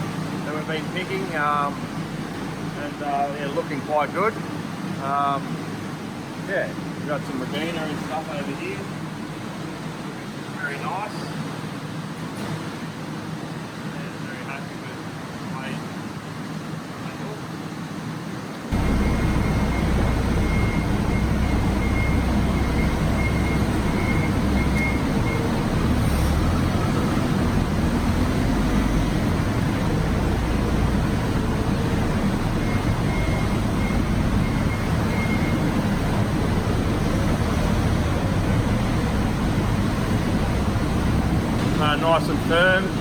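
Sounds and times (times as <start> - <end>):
mechanical noise with low rumble: 0.0 - 43.0
faint high whine: 18.7 - 27.7.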